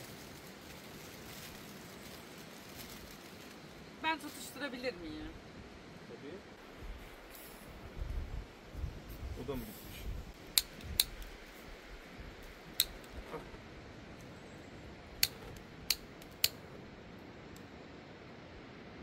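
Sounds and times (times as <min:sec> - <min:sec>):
sharp clicks: 0:10.4 - 0:11.4, 0:12.7 - 0:13.2, 0:15.2 - 0:16.7.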